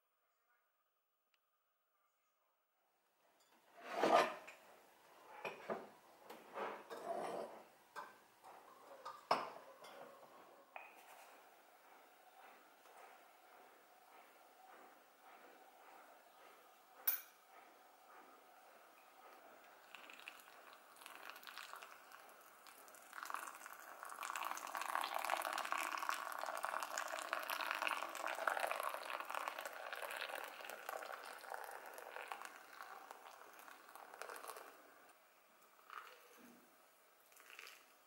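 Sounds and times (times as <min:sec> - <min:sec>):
water pouring onto coffee grounds: 0:19.6 - 0:34.8, 0:35.8 - 0:36.4, 0:37.2 - 0:37.9.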